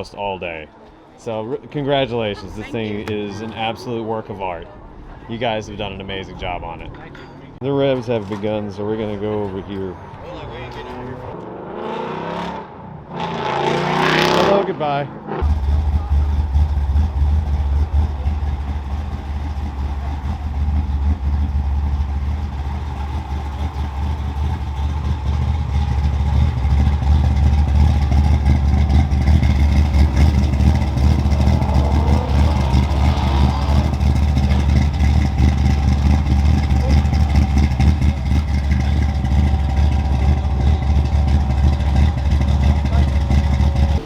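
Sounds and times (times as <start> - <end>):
car engines rumbling: 0.0 - 44.0
engine revving: 10.4 - 44.0.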